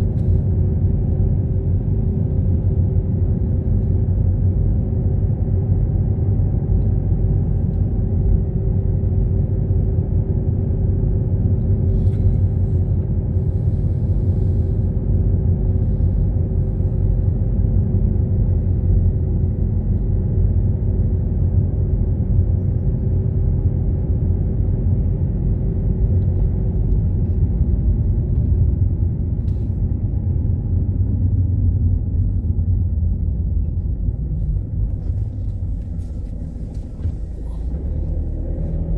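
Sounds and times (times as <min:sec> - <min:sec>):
car engine and road noise: 0:00.0 - 0:03.9, 0:25.0 - 0:38.9
faint steady hum: 0:11.0 - 0:38.9.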